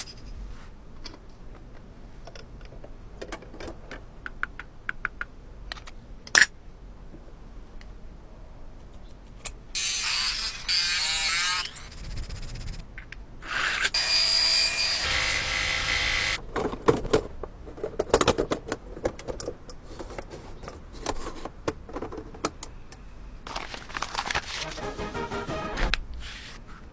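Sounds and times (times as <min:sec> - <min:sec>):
small power tool whining: 0:13.5 - 0:16.4.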